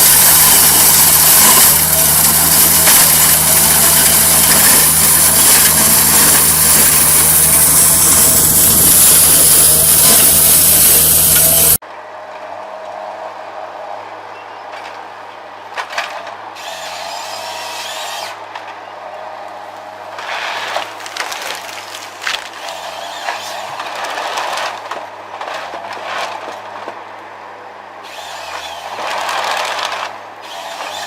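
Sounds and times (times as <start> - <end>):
heavy logging machinery running: 0.0 - 11.8, 20.1 - 26.9
quieter machine running: 0.0 - 11.8.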